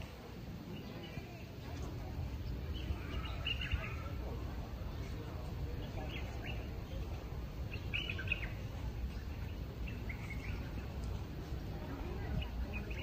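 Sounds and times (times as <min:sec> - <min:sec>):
low steady background rumble: 0:00.0 - 0:13.0
birds chirping: 0:00.4 - 0:13.0.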